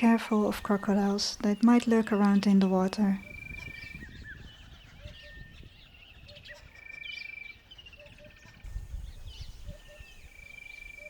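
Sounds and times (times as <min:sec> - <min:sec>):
birds calling: 0:00.0 - 0:11.0.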